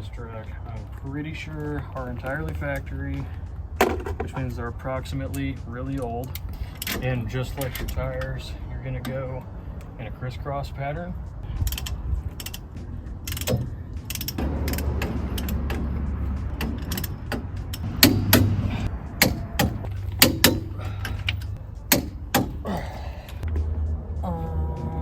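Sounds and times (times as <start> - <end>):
hand ratchet clicking: 11.6 - 23.5
sharp metallic knocks: 13.3 - 21.3, 21.9 - 22.7.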